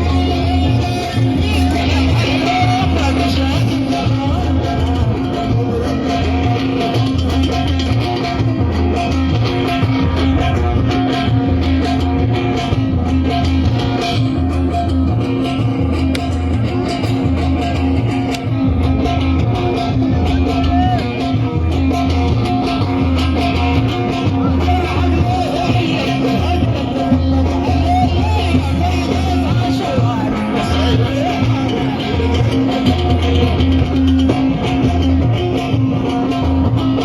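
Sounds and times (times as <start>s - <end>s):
person singing: 0.0s - 6.5s, 24.4s - 33.0s
bass guitar: 0.0s - 37.0s
electric guitar: 0.0s - 37.0s.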